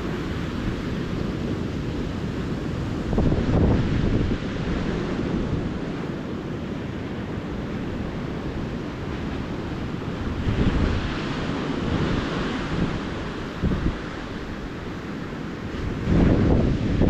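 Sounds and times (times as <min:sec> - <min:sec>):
small waves breaking on beach: 0:00.0 - 0:17.0
wind buffeting microphone: 0:00.0 - 0:17.0.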